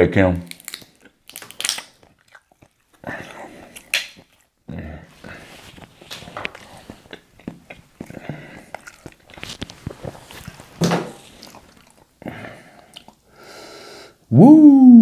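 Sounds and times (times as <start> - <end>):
wet clicks and snaps: 0.4 - 2.4, 3.8 - 4.3
seafood being chewed: 0.5 - 13.3.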